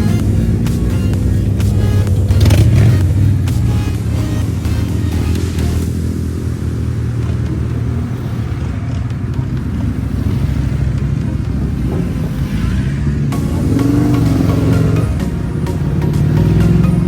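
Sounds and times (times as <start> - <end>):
motorcycle engines running: 0.0 - 17.0.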